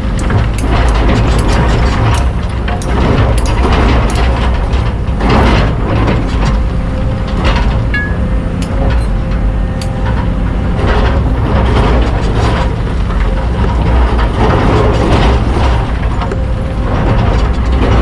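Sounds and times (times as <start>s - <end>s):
metallic clanks and knocks: 0.0s - 11.2s
excavator diesel engine running: 0.0s - 18.0s.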